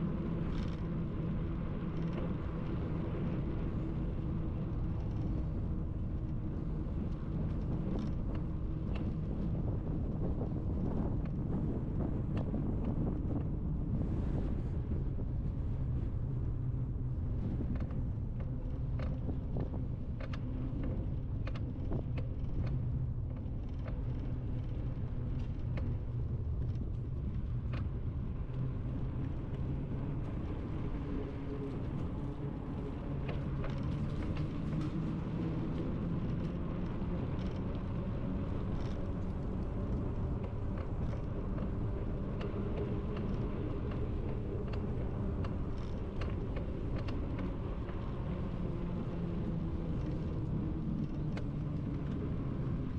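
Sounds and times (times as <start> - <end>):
wind buffeting microphone: 0.0 - 52.9
small clicks and rattles: 4.8 - 9.5, 17.7 - 52.9
bicycle rolling: 23.4 - 52.9.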